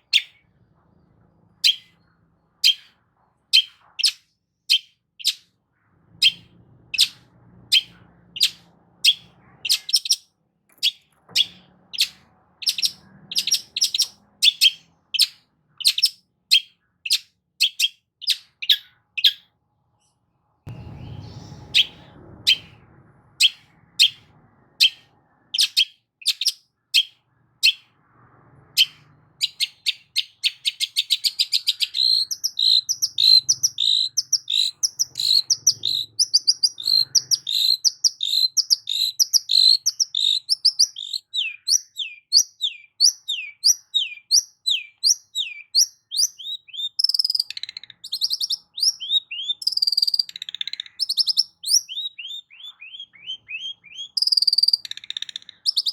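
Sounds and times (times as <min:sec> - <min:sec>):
shrike singing: 0:20.7 - 0:27.8.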